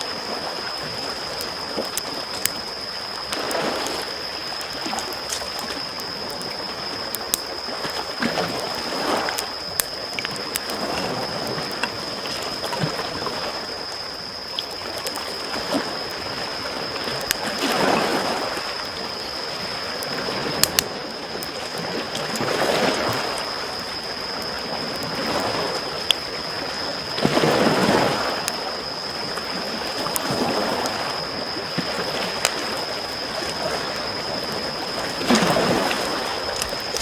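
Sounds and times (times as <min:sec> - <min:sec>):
waves lapping on shore: 0:00.0 - 0:06.9, 0:14.6 - 0:37.0
campfire crackling: 0:00.0 - 0:37.0.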